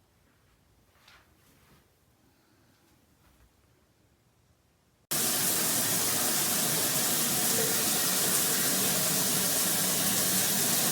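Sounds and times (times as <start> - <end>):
shower water spraying: 5.1 - 10.9.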